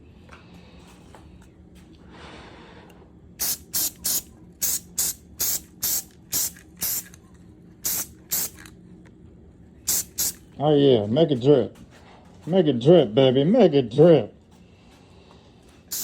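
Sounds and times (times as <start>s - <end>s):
spray paint can hissing bursts: 3.4s - 7.2s, 7.8s - 8.7s, 9.9s - 10.4s.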